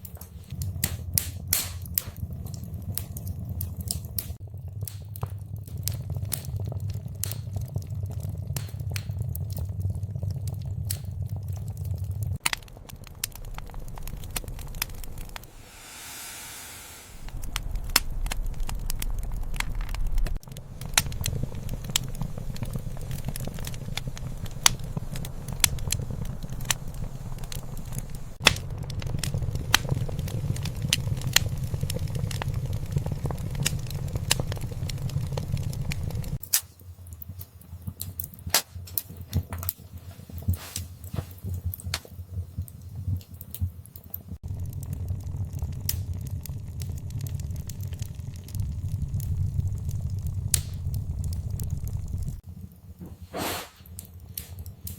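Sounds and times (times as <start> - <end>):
wood fire crackling and popping: 0.0 - 16.0, 17.1 - 54.9
low rumble of flames: 0.0 - 54.9
brief hiss: 15.5 - 17.3, 53.3 - 53.9.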